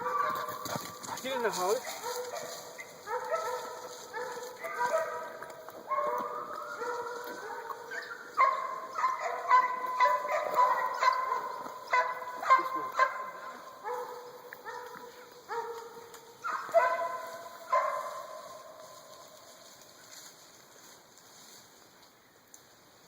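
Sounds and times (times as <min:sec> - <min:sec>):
hounds barking and bawling: 0:00.0 - 0:18.9.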